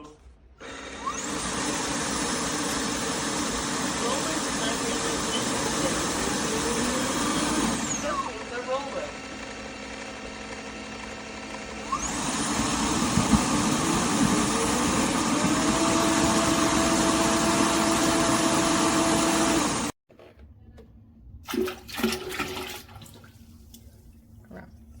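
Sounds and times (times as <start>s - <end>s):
suction motor whining: 0.6s - 20.0s
vacuum mop humming: 0.6s - 20.0s
water rushing through roller: 11.9s - 19.9s.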